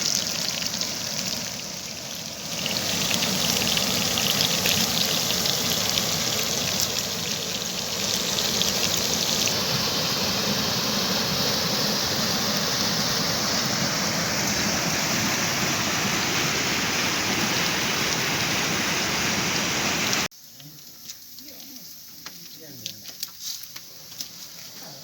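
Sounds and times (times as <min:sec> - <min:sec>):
rushing water: 0:00.0 - 0:20.3.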